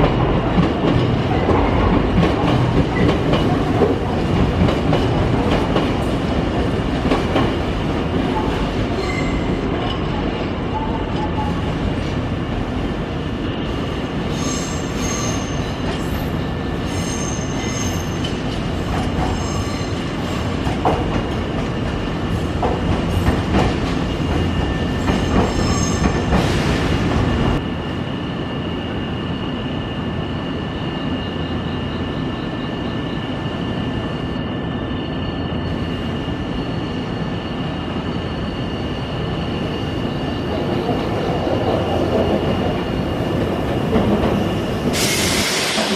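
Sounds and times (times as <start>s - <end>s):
heavy train rumble: 0.0s - 45.9s
train wheels squealing: 8.3s - 12.1s, 14.2s - 20.6s, 23.8s - 27.0s, 28.4s - 45.9s.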